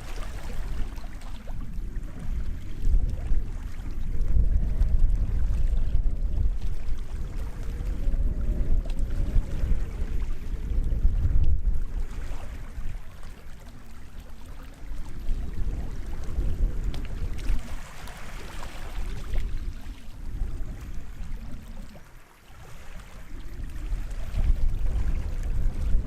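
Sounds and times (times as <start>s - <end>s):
sea waves washing onto shore: 0.0s - 26.0s
deep rumble: 1.8s - 12.1s.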